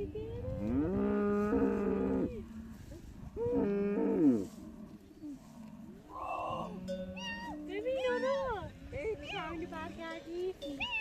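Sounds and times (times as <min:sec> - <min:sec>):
cow mooing: 0:03.4 - 0:04.6, 0:05.6 - 0:08.3.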